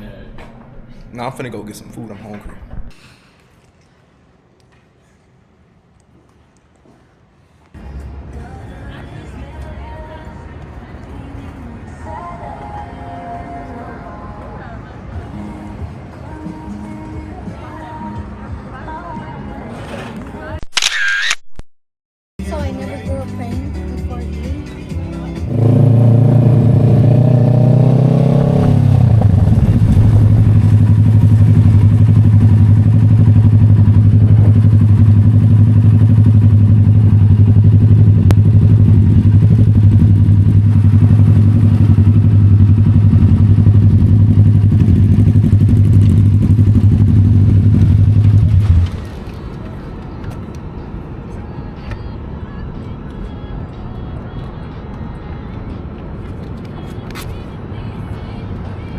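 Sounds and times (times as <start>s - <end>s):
motorcycle engine running: 24.9s - 49.2s.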